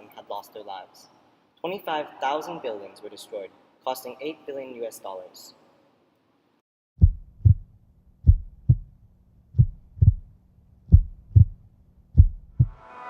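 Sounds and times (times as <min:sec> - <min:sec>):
heartbeat thumps: 0:07.0 - 0:10.3, 0:10.9 - 0:12.8.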